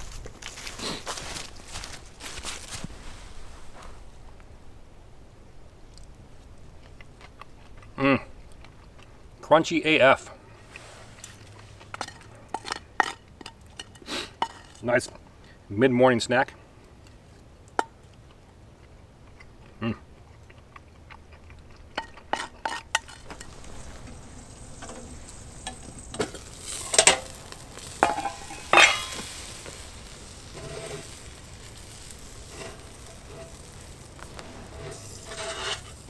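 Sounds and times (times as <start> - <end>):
sausage sizzling: 0.0 - 3.1, 22.0 - 36.0
metal cookware clinking: 22.0 - 36.0.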